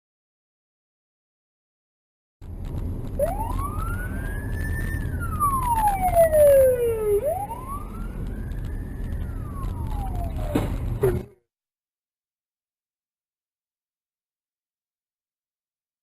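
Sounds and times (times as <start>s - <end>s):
low steady rumble: 2.4s - 11.2s
emergency vehicle siren wailing: 3.1s - 11.3s.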